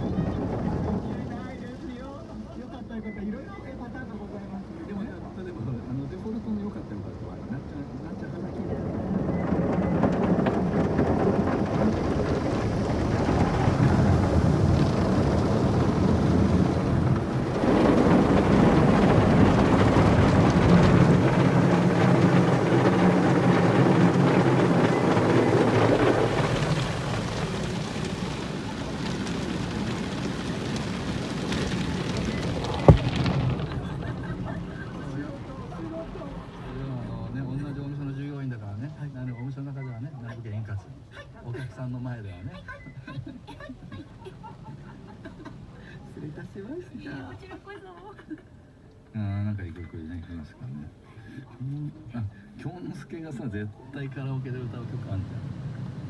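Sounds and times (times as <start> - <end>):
car wash brushes drumming: 7.9 - 37.7.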